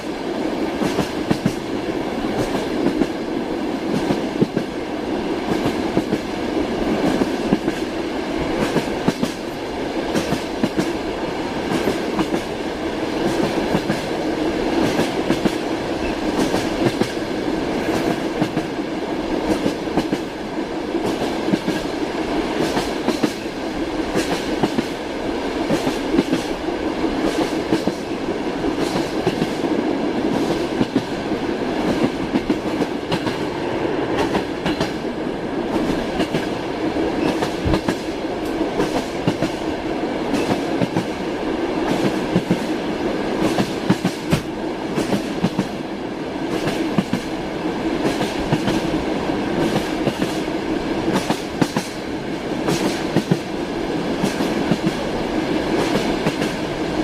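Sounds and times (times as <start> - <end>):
train wheels clicking on rails: 0.0 - 57.0.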